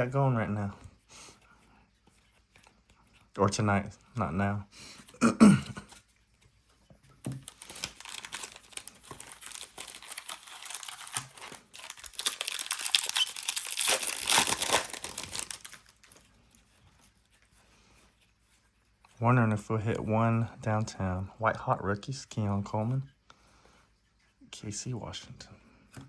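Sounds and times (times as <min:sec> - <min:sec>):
wrapper tearing and crinkling: 0:07.5 - 0:16.2.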